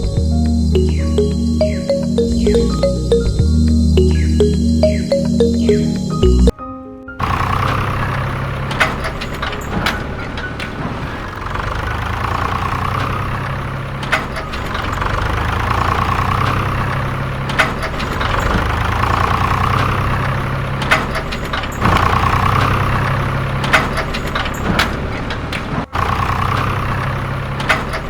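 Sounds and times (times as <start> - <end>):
engine-like idling hum: 7.2 - 28.0.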